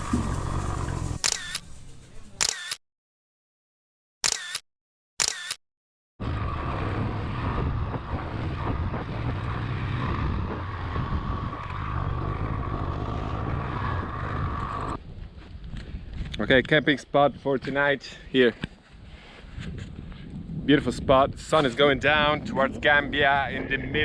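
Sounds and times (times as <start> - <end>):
camera shutter clicks: 1.2 - 1.6, 2.4 - 2.8, 4.2 - 5.6
wind on microphone: 6.2 - 17.6, 18.6 - 24.0.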